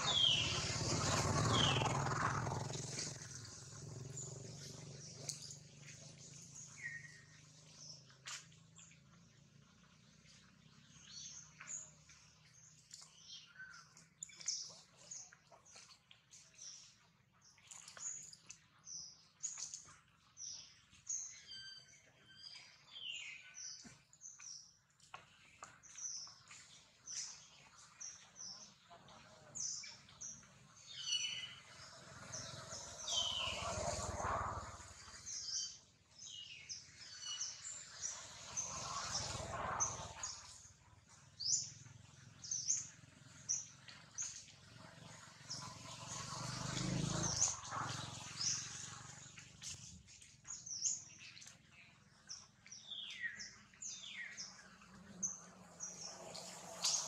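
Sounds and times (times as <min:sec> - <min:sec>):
birds chirping and whistling: 0:00.0 - 0:03.1, 0:04.0 - 0:07.4, 0:20.5 - 0:23.8, 0:29.6 - 0:40.6, 0:45.5 - 0:51.4, 0:52.3 - 0:57.0.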